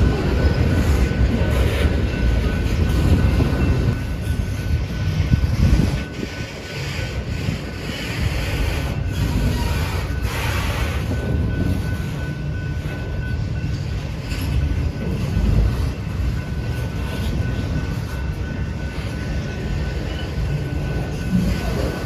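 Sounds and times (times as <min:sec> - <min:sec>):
freight train wheels rumbling: 0:00.0 - 0:22.0.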